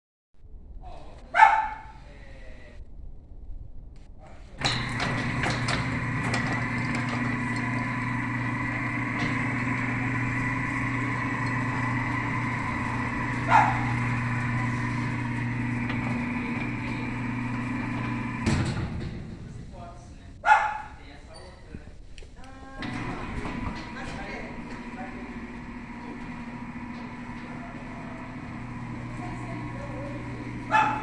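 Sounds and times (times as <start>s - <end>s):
dog barking: 1.3s - 1.9s, 20.4s - 20.9s, 30.7s - 31.0s
machine clicks: 4.6s - 19.7s, 22.8s - 31.0s
machine humming: 4.6s - 20.4s, 22.7s - 31.0s.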